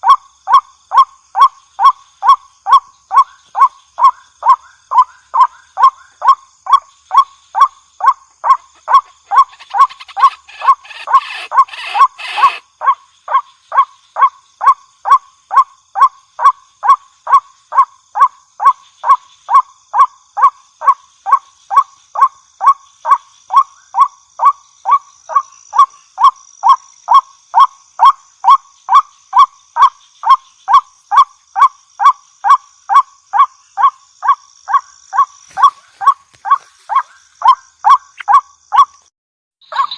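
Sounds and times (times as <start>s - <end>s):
waterhen calling: 8.4s - 12.6s
harsh burst of calling: 8.8s - 12.6s.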